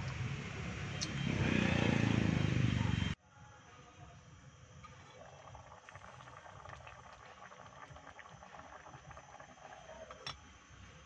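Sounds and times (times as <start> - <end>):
liquid boiling in a pot: 4.7 - 11.0.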